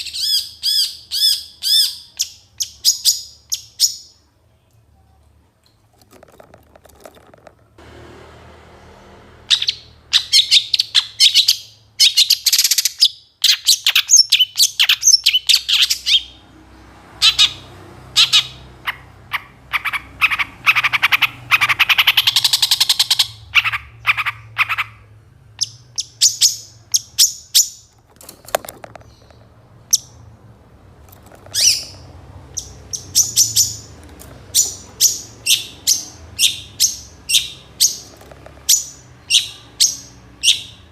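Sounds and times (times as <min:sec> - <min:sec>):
bird singing: 0:09.5 - 0:16.4, 0:17.2 - 0:28.0, 0:31.4 - 0:40.9.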